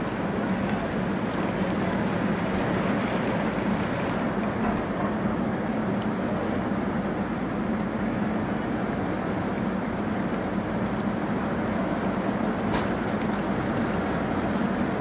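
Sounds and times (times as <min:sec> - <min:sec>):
heavy rain in strong wind: 0:00.0 - 0:15.0.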